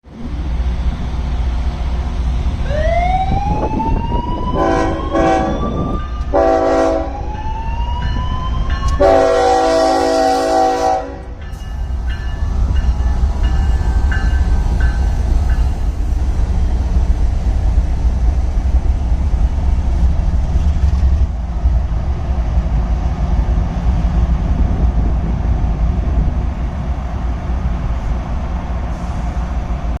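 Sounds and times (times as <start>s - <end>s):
passing train rumble: 0.0s - 30.0s
locomotive air horn blasts: 4.5s - 7.3s, 8.9s - 11.4s.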